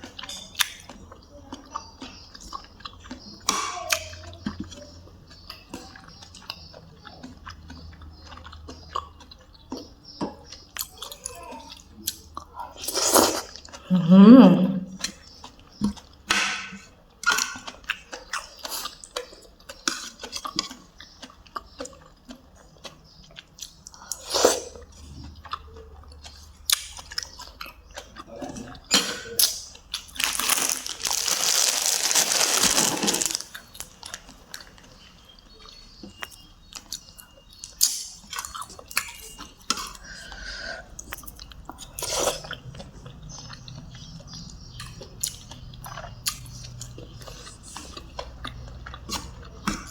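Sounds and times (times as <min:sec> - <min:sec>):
person chewing and crunching: 0:00.0 - 0:13.9, 0:15.0 - 0:49.9.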